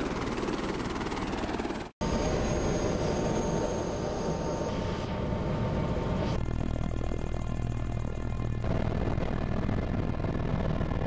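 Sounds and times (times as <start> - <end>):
helicopter rotor and engine: 0.0 - 11.0.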